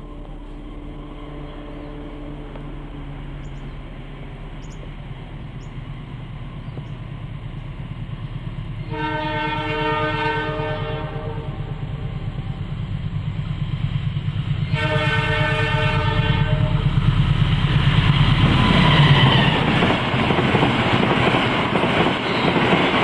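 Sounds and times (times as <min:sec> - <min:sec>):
train horn chord: 0:00.0 - 0:03.4, 0:08.8 - 0:12.8, 0:14.6 - 0:16.9
locomotive engine rumble: 0:00.0 - 0:23.0.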